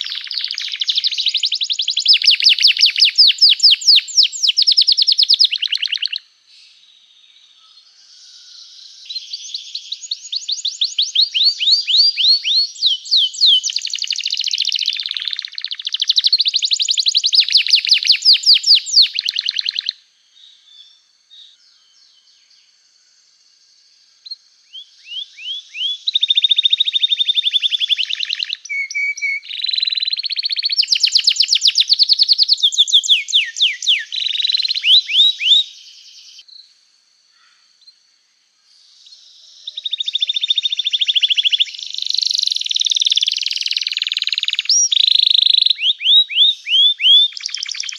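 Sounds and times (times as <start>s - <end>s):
canary singing trills: 0.0s - 6.2s, 9.0s - 20.0s, 24.2s - 36.4s, 39.4s - 47.9s.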